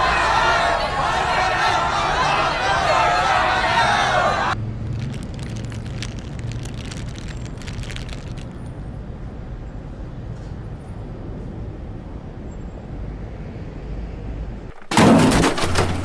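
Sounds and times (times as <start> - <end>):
city traffic rumble: 0.0 - 16.0
crackly rustle: 4.8 - 8.7.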